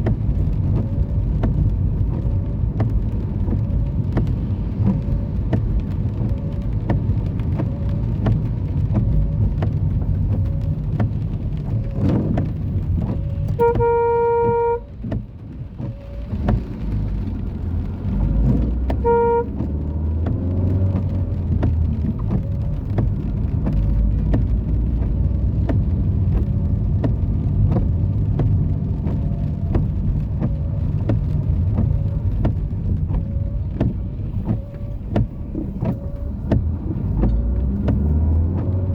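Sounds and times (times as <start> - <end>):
traffic engines rumbling: 0.0 - 38.9
car horn: 13.6 - 14.9, 18.9 - 19.7.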